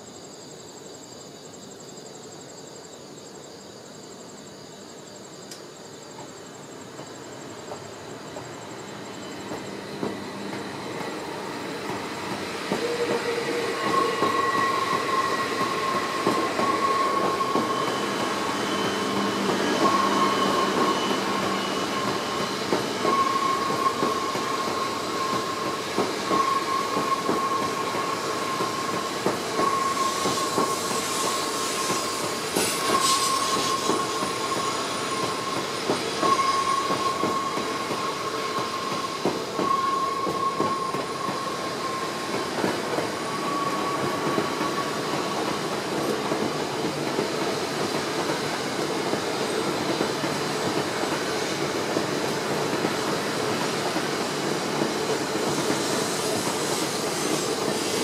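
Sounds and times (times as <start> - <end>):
train cars rolling rumble: 6.1 - 58.0
brief hiss: 29.7 - 45.5.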